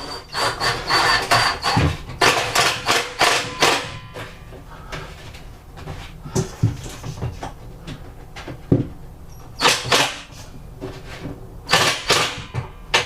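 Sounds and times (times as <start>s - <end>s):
knocks and clunks inside cabinet: 8.4s - 9.0s.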